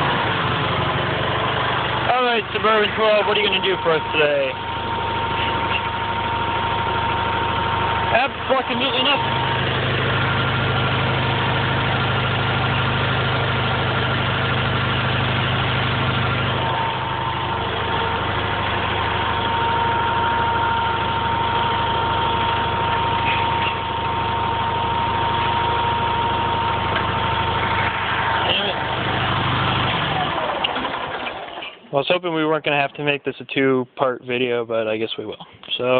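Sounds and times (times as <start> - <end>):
tractor engine idling: 0.0 - 35.9.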